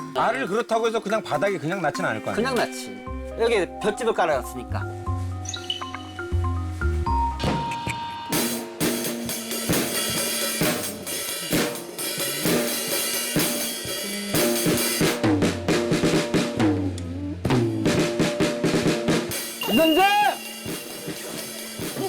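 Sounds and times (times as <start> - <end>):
music with held notes: 1.2 - 22.0
drum kit playing: 4.6 - 22.0.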